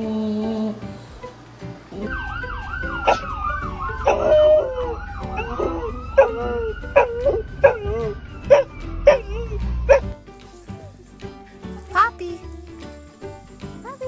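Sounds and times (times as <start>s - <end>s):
emergency siren warbling yelp: 2.0s - 10.1s
dog barking: 2.2s - 10.2s.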